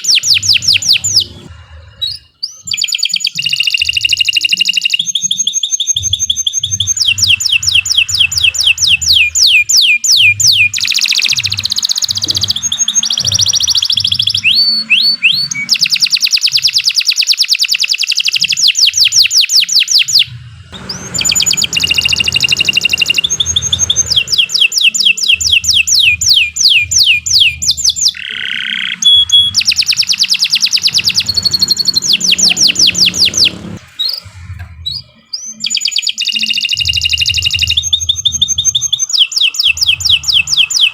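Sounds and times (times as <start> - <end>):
canary singing trills: 0.0 - 40.9
low rumble: 20.3 - 24.6.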